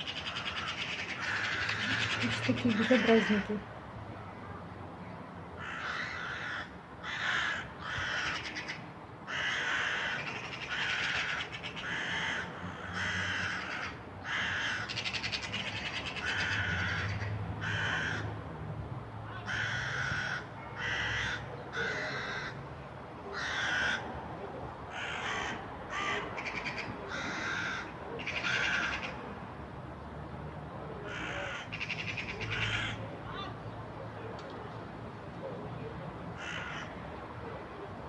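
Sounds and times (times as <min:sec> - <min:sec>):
crows cawing: 0:00.0 - 0:03.6, 0:05.6 - 0:18.3, 0:19.4 - 0:22.6, 0:23.3 - 0:24.1, 0:24.9 - 0:29.2, 0:31.1 - 0:33.5, 0:36.4 - 0:37.0.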